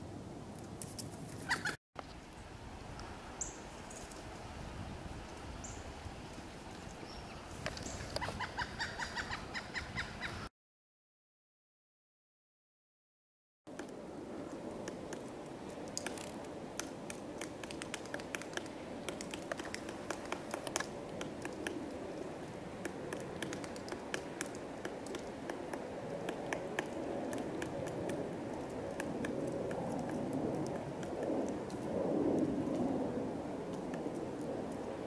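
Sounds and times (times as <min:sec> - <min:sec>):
woodpecker pecking at wood: 0:15.9 - 0:31.6.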